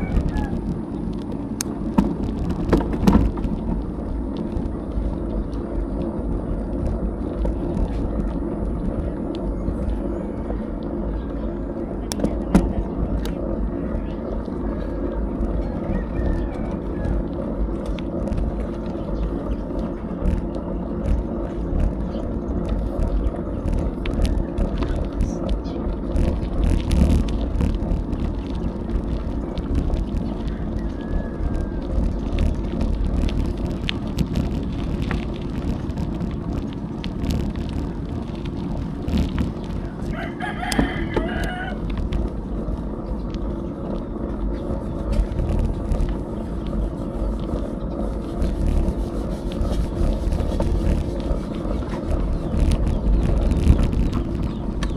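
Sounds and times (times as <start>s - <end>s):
rooster crowing: 0.0s - 0.6s, 15.6s - 17.4s, 30.4s - 32.0s, 40.0s - 41.8s
bicycle road noise: 0.0s - 54.9s
small rattles and clicks: 0.0s - 54.9s
wind on microphone: 0.0s - 54.9s.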